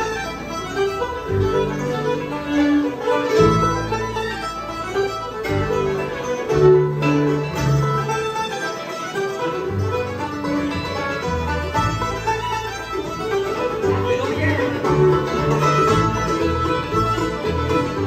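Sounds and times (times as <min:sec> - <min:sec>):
bluegrass band playing: 0:00.0 - 0:18.0
fiddle: 0:00.0 - 0:18.0.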